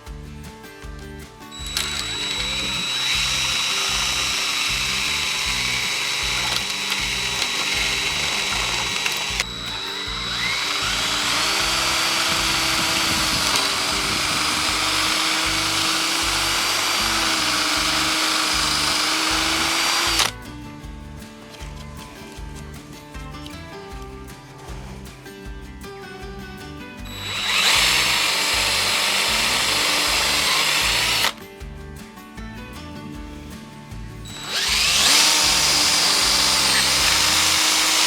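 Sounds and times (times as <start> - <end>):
power drill boring into wood: 1.6 - 20.3, 27.1 - 31.4, 34.3 - 38.0.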